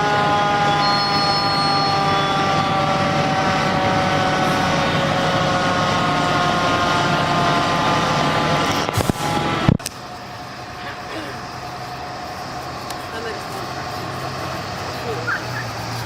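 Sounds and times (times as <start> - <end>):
siren wailing: 0.0 - 8.6, 14.1 - 15.8
engine and road rumble: 0.0 - 16.0.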